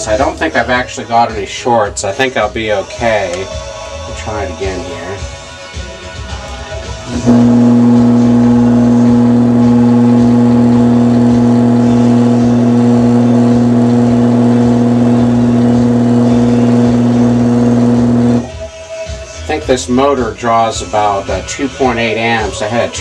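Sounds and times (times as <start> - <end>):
electric motor humming: 7.1 - 18.5.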